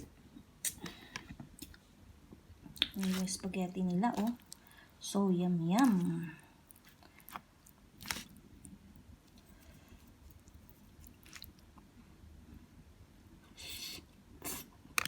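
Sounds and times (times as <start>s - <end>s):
soft chewing: 0.6s - 4.8s, 5.8s - 12.0s.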